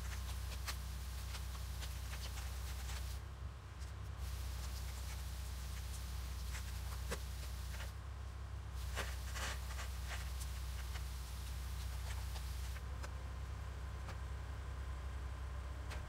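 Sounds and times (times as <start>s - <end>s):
handling clicks and rustles: 0.0s - 3.2s, 8.8s - 13.2s.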